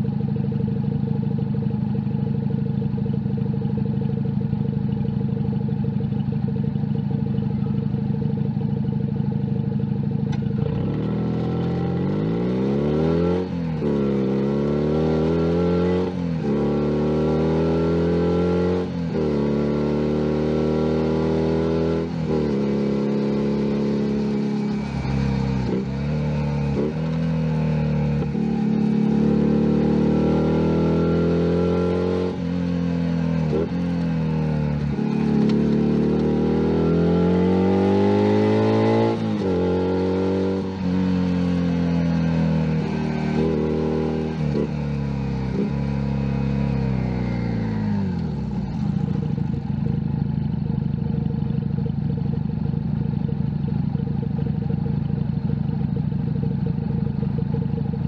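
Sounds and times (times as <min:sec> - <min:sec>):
motorcycle engine idling: 0:00.0 - 0:12.2, 0:44.3 - 0:58.0
motorcycle accelerating through gears: 0:00.0 - 0:58.0.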